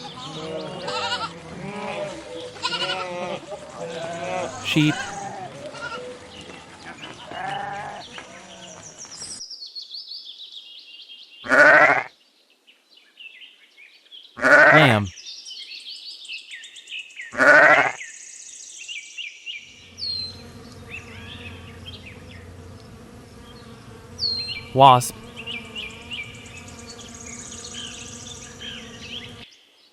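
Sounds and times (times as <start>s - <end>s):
sheep and lamb bleating: 0.6s - 3.4s
small birds chirping: 19.9s - 29.4s.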